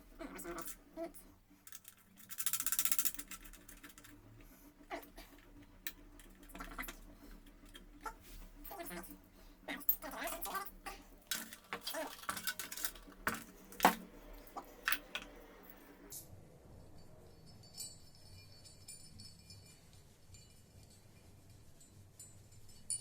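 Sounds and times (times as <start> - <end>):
faint handling sounds: 0.0 - 16.1
metal hardware clinking and knocking: 1.7 - 4.3, 11.3 - 15.5.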